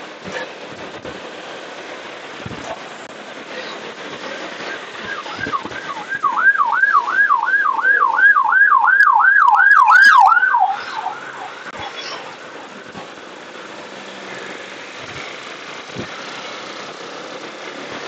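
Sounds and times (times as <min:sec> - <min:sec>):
electronic siren yelping: 0:05.0 - 0:12.4.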